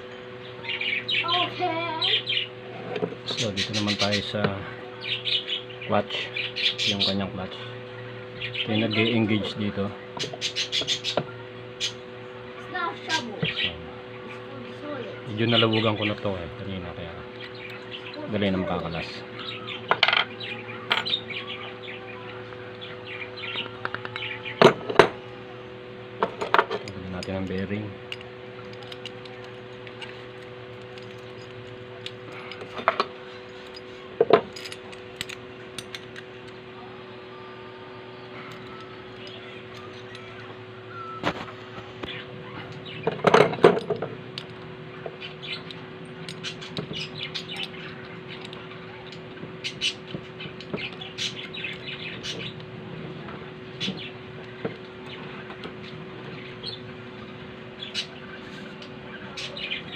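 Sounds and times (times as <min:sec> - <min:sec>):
electrical hum: 0:00.0 - 0:59.9
small birds chirping: 0:00.2 - 0:02.6, 0:03.2 - 0:16.2, 0:17.2 - 0:24.7, 0:35.6 - 0:43.2, 0:44.9 - 0:52.7, 0:53.3 - 0:59.9.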